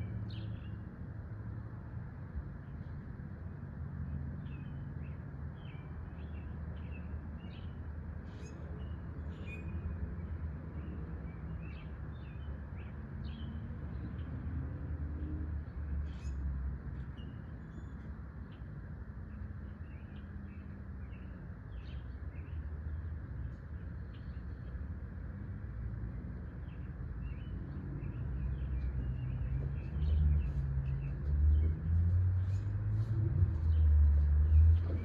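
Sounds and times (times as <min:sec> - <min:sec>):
songbirds chirping: 0:00.0 - 0:35.0
steady low rumble: 0:29.1 - 0:35.0.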